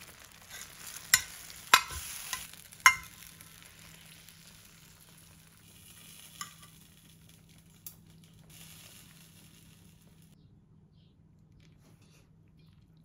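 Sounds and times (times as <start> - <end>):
food sizzling: 0.0 - 10.4.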